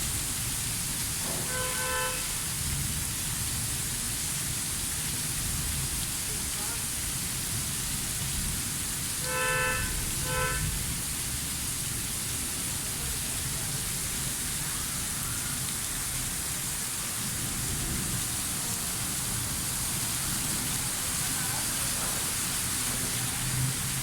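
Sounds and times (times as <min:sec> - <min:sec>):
heavy rain falling: 0:00.0 - 0:24.0
horn honks: 0:01.4 - 0:02.4, 0:09.2 - 0:10.8.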